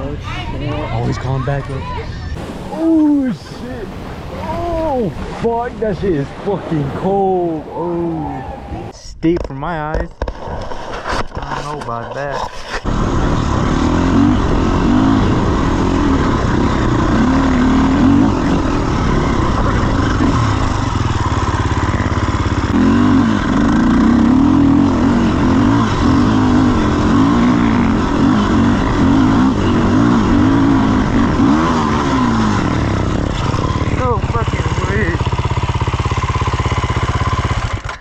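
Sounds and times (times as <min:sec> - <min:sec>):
dirt bike engine revving: 0:12.8 - 0:38.0.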